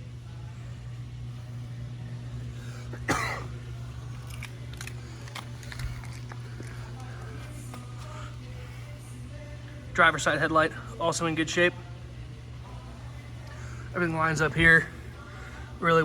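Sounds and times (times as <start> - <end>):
steady low hum: 0.0 - 16.0
man coughing: 2.9 - 3.6.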